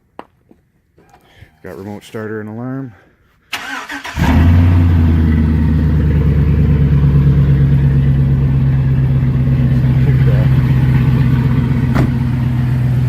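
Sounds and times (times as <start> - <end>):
car engine cranking and idling: 3.5 - 13.0.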